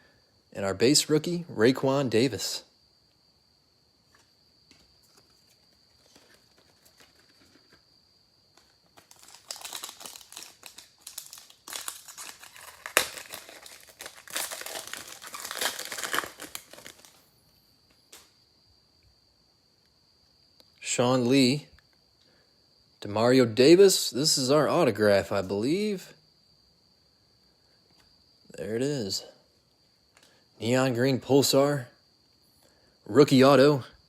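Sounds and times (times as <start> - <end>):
foil wrapper crinkling and tearing: 8.6 - 17.2.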